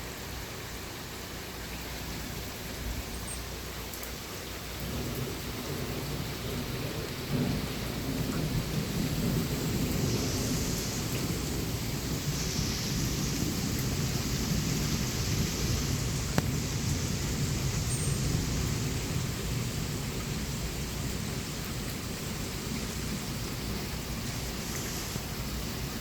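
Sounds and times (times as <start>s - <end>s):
steady rain: 0.0s - 26.0s
rolling thunder: 4.8s - 24.6s.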